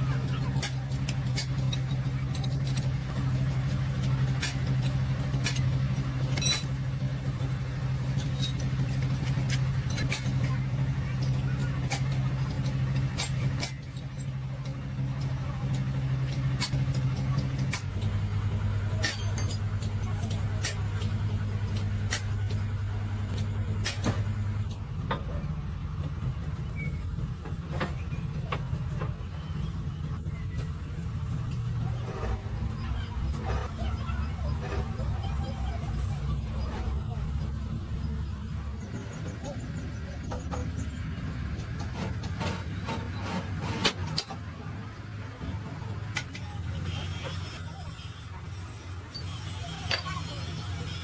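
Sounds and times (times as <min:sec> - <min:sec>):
engine running: 0:00.0 - 0:51.0
sharp metal clicks and knocks: 0:00.2 - 0:18.1.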